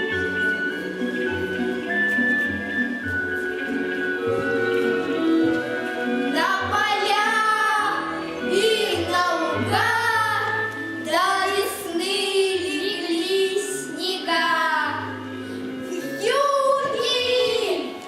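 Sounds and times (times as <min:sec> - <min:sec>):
musical accompaniment: 0:00.0 - 0:18.0
children singing: 0:06.3 - 0:15.0.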